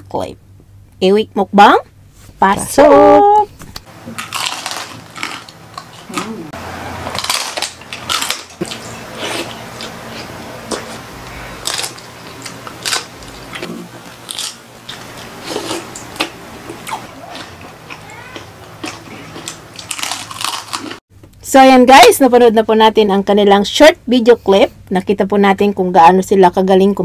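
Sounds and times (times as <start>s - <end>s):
crackles: 3.8s - 6.3s, 7.0s - 10.0s, 10.7s - 21.0s
crunchy chewing: 3.9s - 21.0s.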